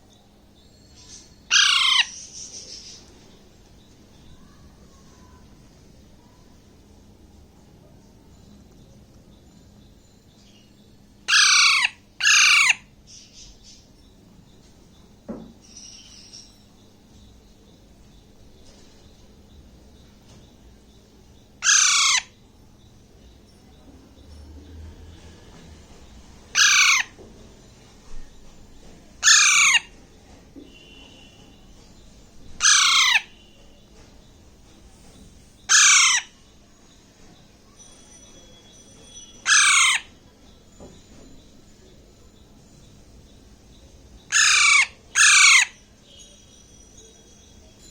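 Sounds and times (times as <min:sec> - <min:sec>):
parakeet screeching calls: 0:01.0 - 0:03.0, 0:11.3 - 0:13.3, 0:21.6 - 0:22.4, 0:26.5 - 0:27.2, 0:29.2 - 0:29.9, 0:32.6 - 0:33.5, 0:35.6 - 0:36.5, 0:39.4 - 0:40.2, 0:44.2 - 0:45.9.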